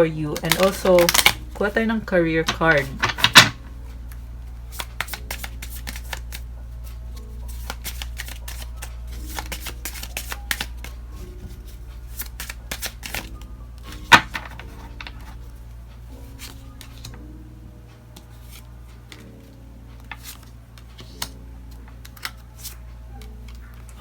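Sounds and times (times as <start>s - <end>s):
soft background music: 0.0s - 24.0s
cards being shuffled: 0.3s - 15.5s, 16.2s - 17.2s, 18.1s - 24.0s
card snap: 0.4s - 1.4s, 4.8s - 6.4s, 7.5s - 10.9s, 12.2s - 13.3s.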